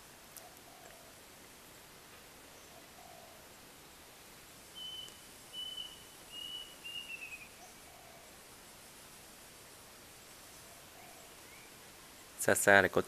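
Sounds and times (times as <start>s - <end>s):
distant dove cooing: 0.4s - 1.2s, 2.6s - 3.6s, 4.8s - 8.4s, 10.6s - 11.8s
songbird whistling: 4.8s - 7.8s.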